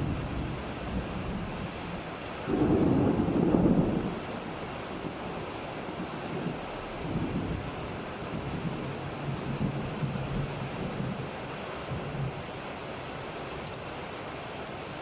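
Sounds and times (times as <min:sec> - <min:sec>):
thunder rumbling: 0:00.0 - 0:11.3
rain: 0:00.0 - 0:15.0
wind: 0:00.0 - 0:15.0.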